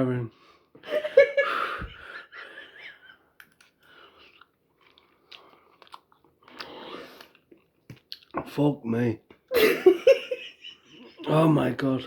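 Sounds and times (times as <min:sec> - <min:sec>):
person chewing food: 0:03.2 - 0:08.5
wet mouth clicks: 0:03.4 - 0:08.4.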